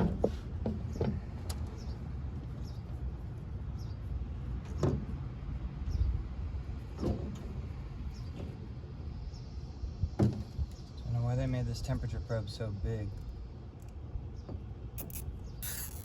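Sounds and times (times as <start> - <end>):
steady low rumble: 1.2 - 15.6
wire clicks and scrapes: 15.0 - 16.0.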